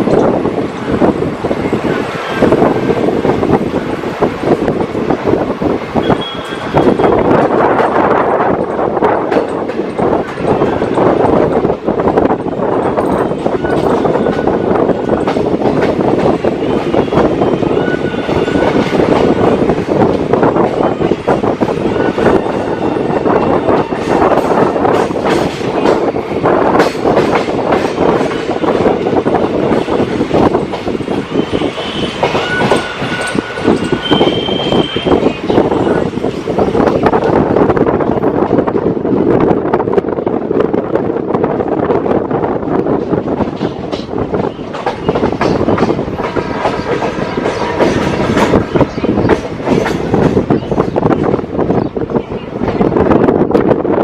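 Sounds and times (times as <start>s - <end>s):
train wheels clattering on rails: 0.0s - 40.8s, 41.8s - 54.0s.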